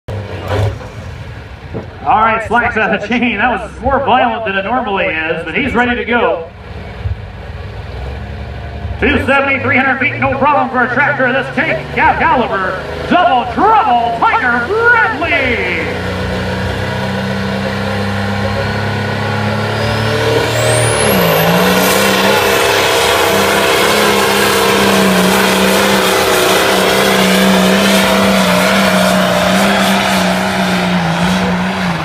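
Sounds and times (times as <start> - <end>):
tractor engine running under load: 10.1 - 32.0.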